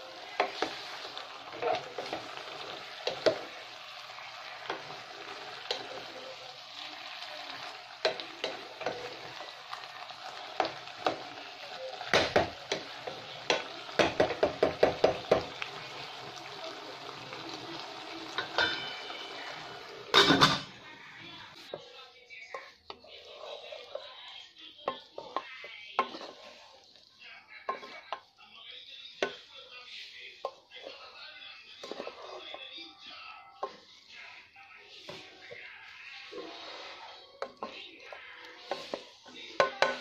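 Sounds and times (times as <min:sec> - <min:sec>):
vegetables sizzling in a pot: 0:00.0 - 0:40.0
wooden spatula knocking on pot: 0:12.1 - 0:12.9, 0:13.5 - 0:15.6.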